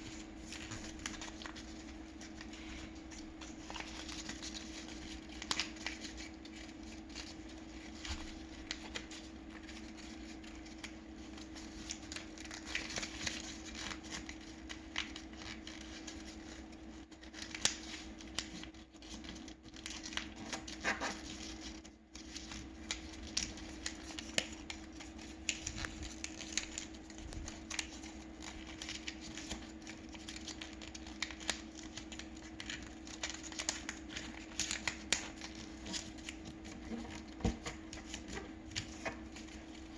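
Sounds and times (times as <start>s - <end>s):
steady low hum: 0.0s - 17.1s
paper crinkling and rustling: 0.0s - 39.9s.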